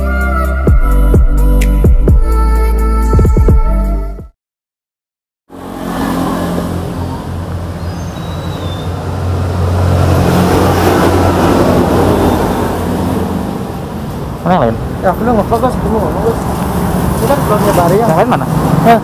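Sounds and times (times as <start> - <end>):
road and wind noise: 5.5 - 19.0
vehicle engine hum: 5.5 - 19.0.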